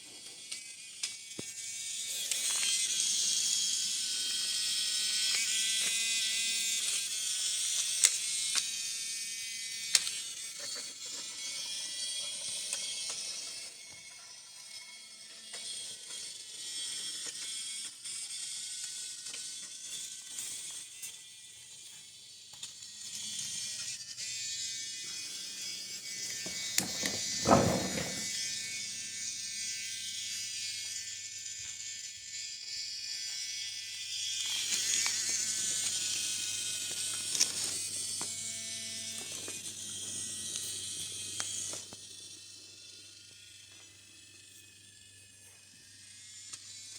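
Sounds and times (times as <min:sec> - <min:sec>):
toy train motor whirring: 0:00.0 - 0:46.9
loud thump: 0:27.4 - 0:28.2.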